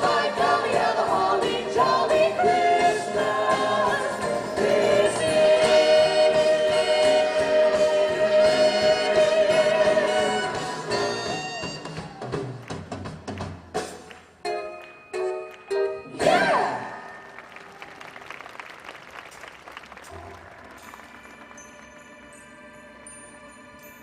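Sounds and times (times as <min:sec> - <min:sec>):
group singing over backing music: 0:00.0 - 0:11.0, 0:16.1 - 0:17.0.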